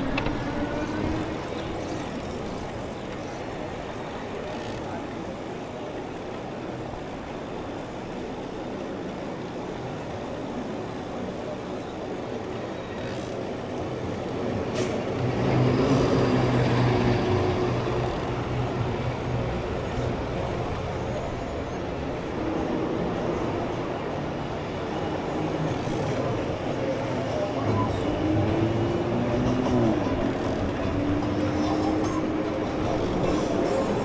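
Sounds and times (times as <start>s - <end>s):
city traffic noise: 0.0s - 34.0s
heavy vehicle engine drone: 14.4s - 34.0s.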